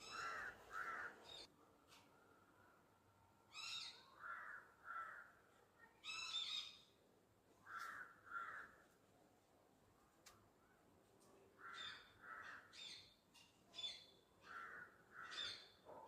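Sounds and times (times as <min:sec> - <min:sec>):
crows cawing: 0:00.0 - 0:01.5, 0:04.2 - 0:05.4, 0:07.6 - 0:08.9, 0:11.6 - 0:12.8, 0:14.4 - 0:15.8.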